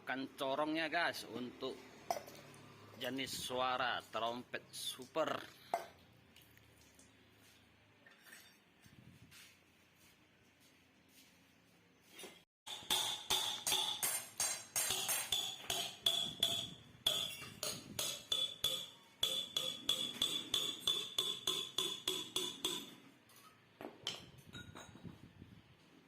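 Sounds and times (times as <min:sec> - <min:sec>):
hammer striking steel muffler: 0:12.7 - 0:23.0.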